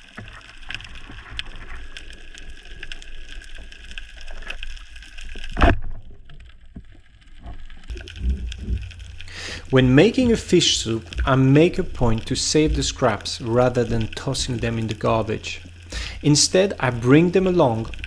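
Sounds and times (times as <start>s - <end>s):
loud thump: 7.9s - 13.2s
low rumble: 7.9s - 18.0s
steady hiss: 7.9s - 18.0s
underwater crackle of clicks: 7.9s - 18.0s.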